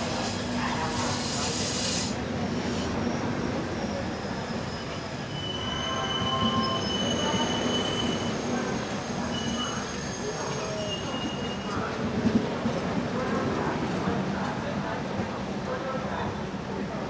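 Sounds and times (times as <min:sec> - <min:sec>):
high wheel squeal: 0:00.0 - 0:12.0
train coaches running: 0:00.0 - 0:17.0.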